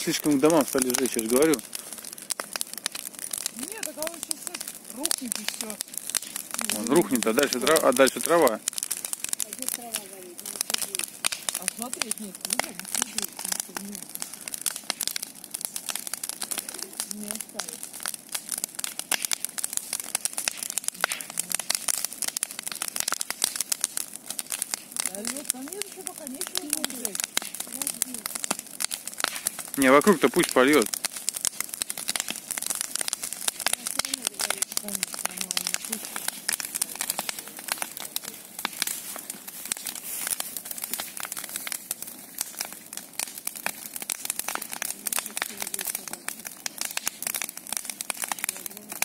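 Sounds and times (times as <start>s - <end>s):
bonfire crackling and popping: 0.0s - 49.0s.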